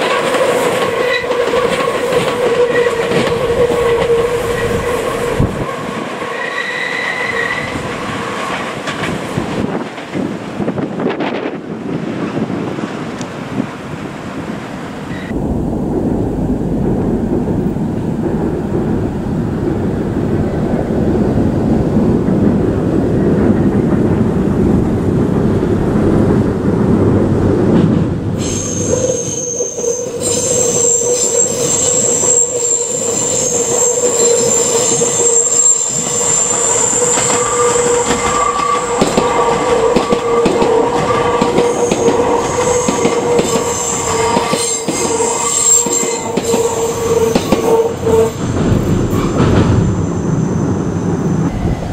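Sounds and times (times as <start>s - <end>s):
electric train rumbling: 0.0s - 51.9s
shrill wheel squeal: 6.2s - 8.7s, 28.4s - 51.9s.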